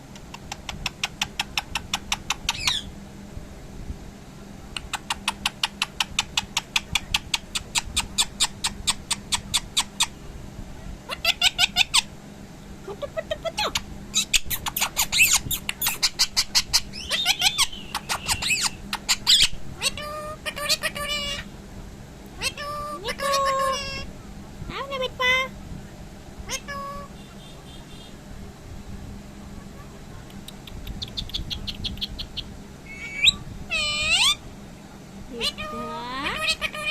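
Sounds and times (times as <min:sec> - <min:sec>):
parrot clicking calls: 0:00.1 - 0:02.9, 0:04.7 - 0:10.1, 0:13.7 - 0:21.3, 0:30.3 - 0:34.4
parrot squawks and whistles: 0:14.2 - 0:19.6, 0:31.1 - 0:34.4.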